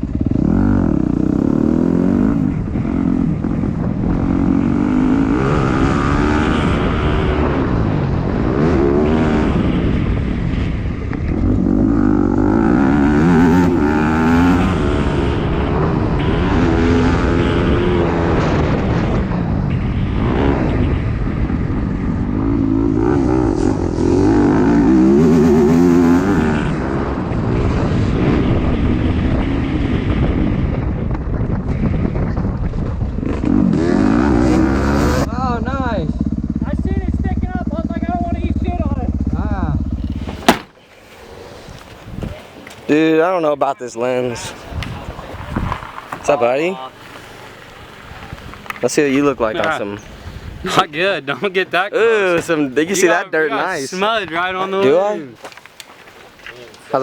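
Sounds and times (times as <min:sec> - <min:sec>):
dirt bike engine revving: 0:00.0 - 0:30.6, 0:33.2 - 0:41.1.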